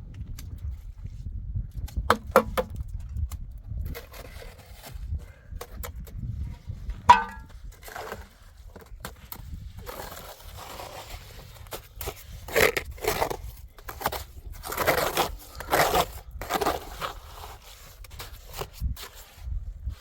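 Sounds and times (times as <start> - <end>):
crunching and scraping: 6.8 - 20.0.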